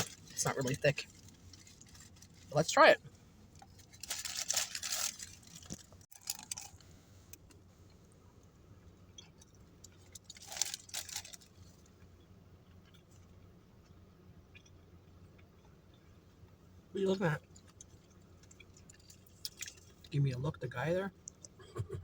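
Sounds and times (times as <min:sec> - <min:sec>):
biting and chewing food: 0:03.4 - 0:08.0, 0:09.0 - 0:16.4, 0:17.4 - 0:20.1.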